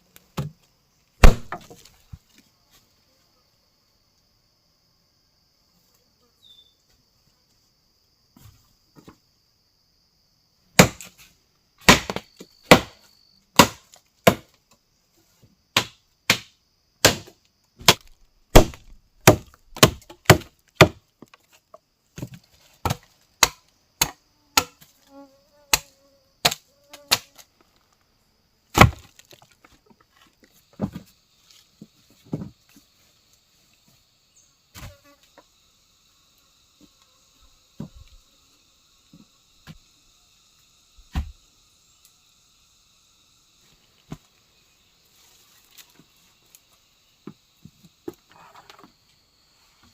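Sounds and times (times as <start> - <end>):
blade chopping wood: 1.2 - 1.8, 10.8 - 11.1, 11.8 - 13.0, 13.6 - 14.5, 15.8 - 21.0, 22.2 - 24.9, 25.7 - 27.4, 28.7 - 29.4.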